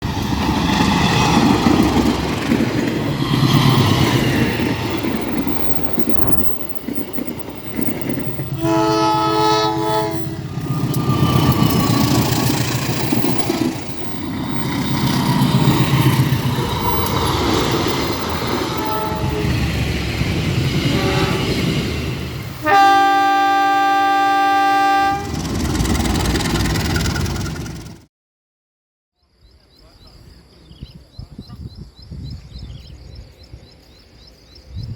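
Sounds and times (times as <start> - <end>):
locomotive engine rumbling: 0.0 - 28.0
train horn chord: 8.6 - 10.5, 18.6 - 19.6, 20.8 - 21.8, 22.6 - 25.4.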